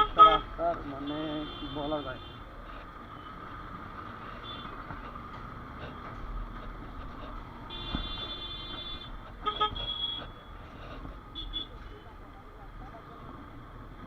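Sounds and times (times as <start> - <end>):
vehicle horn honking: 0.0 - 2.4, 7.7 - 10.4
motorcycle engine and road noise: 0.0 - 14.0.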